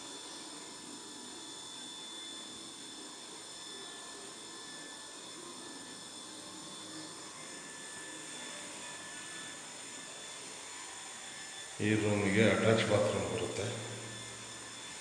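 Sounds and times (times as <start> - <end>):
faint high-pitched whining tones: 0.0 - 15.0
room tone hiss: 10.4 - 15.0.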